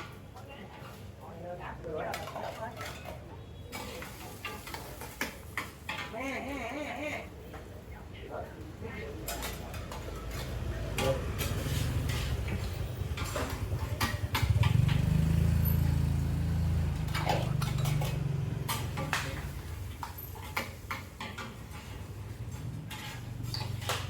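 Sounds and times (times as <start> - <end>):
dishes and cutlery clinking: 2.0 - 6.4, 9.2 - 24.0
vehicle engine running: 11.8 - 19.7.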